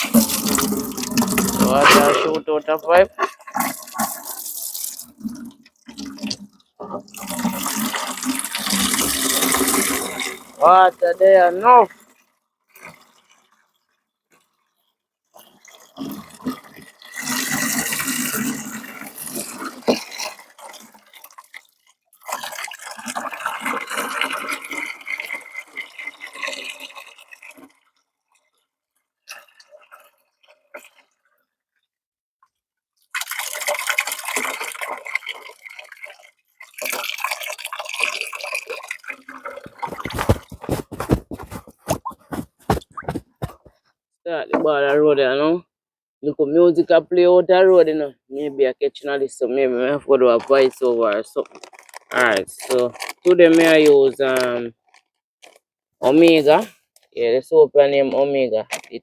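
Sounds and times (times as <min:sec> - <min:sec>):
water splashing in a bath pan: 0:00.0 - 0:02.1, 0:03.2 - 0:13.7, 0:15.4 - 0:28.0, 0:33.0 - 0:43.7.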